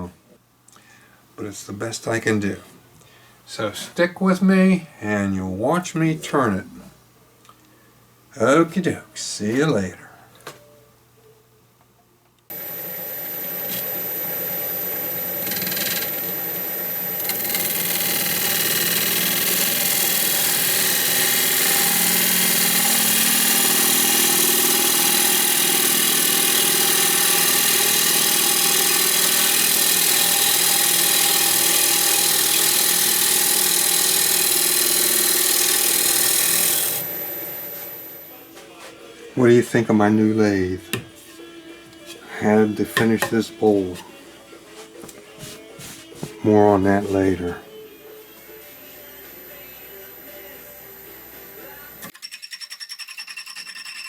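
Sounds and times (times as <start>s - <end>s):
wood lathe turning: 12.5s - 38.3s, 42.4s - 44.1s.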